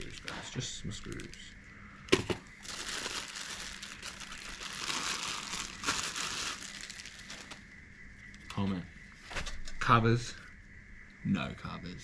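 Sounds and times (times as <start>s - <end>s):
packaging crinkling: 0.0s - 1.4s, 2.1s - 7.7s.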